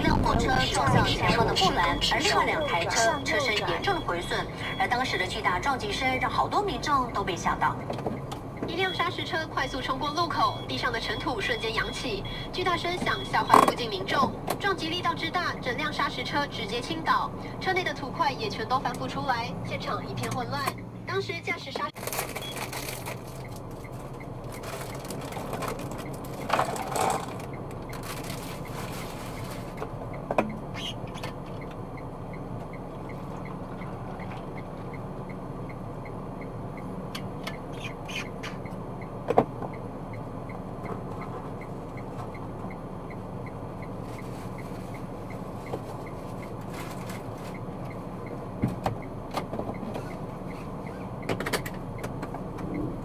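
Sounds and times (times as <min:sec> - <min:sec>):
road and engine noise inside car: 0:00.0 - 0:53.0
faint regular ticking: 0:29.4 - 0:37.8, 0:38.6 - 0:46.6.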